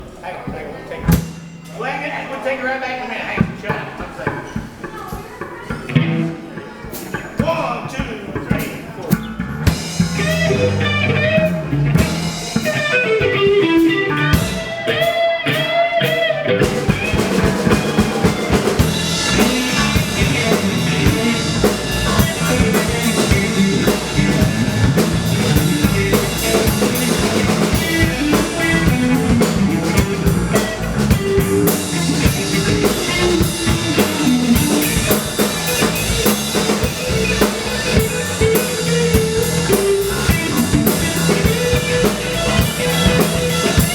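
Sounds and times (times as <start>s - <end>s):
guitar: 0.0s - 2.6s, 3.2s - 43.9s
drum kit and cymbals: 1.1s - 2.4s, 4.5s - 43.9s
bass notes: 9.0s - 43.9s.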